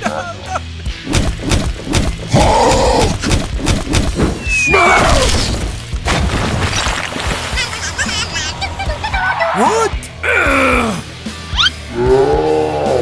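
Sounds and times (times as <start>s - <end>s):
background music: 0.0s - 13.0s
knocks and crashes: 1.1s - 8.8s
glass shattering: 4.9s - 8.3s.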